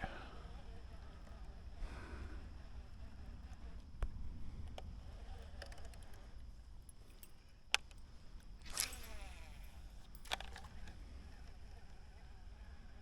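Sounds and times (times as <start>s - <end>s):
fishing tackle clicks: 4.6s - 11.0s
tackle rustling: 8.6s - 10.6s.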